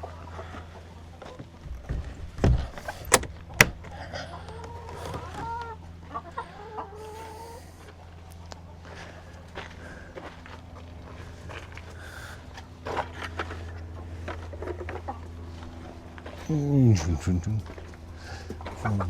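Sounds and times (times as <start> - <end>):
hens clucking: 4.0 - 9.0
wavering hen calls: 4.3 - 7.8.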